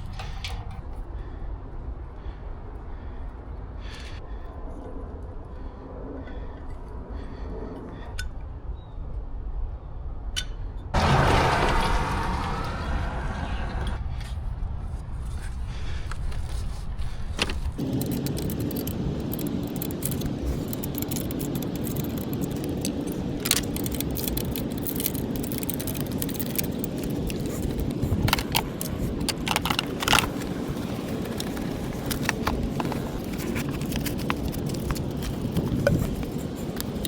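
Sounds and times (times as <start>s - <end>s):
steady low rumble: 0.0s - 37.0s
metal tools clinking and rattling: 17.8s - 37.0s.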